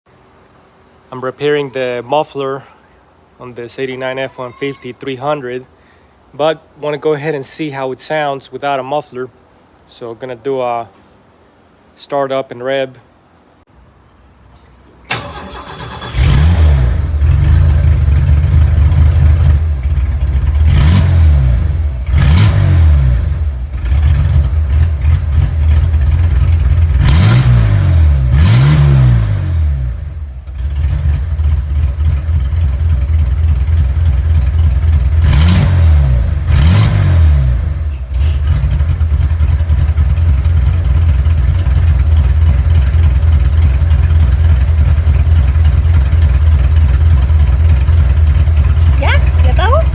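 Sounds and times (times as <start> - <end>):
engine cranking: 14.6 - 49.9
loud engine idling and revving: 15.2 - 49.9.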